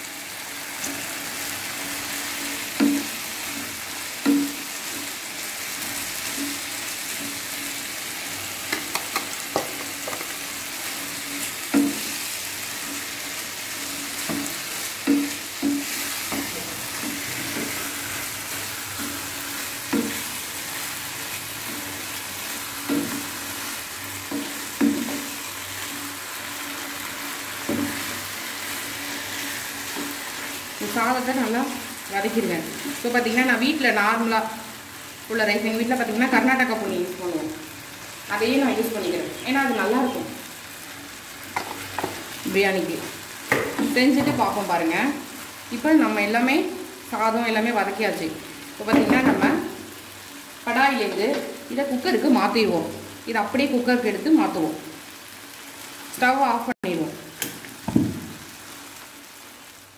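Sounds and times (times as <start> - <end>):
vegetables and rice sizzling: 0.0 - 59.9
wooden spatula knocking on pan: 2.8 - 3.2, 8.7 - 10.4, 11.7 - 12.1, 14.2 - 16.7, 19.9 - 20.3, 22.8 - 23.3, 24.3 - 25.4, 41.6 - 42.2, 43.5 - 44.6, 48.9 - 49.4, 57.8 - 58.4.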